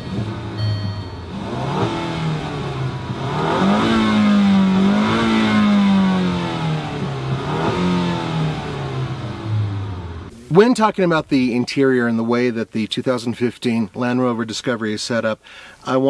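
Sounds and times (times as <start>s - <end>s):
car engine revving: 0.0s - 10.3s.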